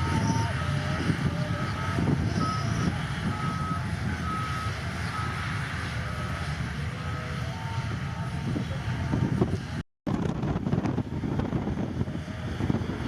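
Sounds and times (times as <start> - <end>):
reversing alarm beeping: 0.0 - 9.3
diesel engine running: 0.0 - 13.0.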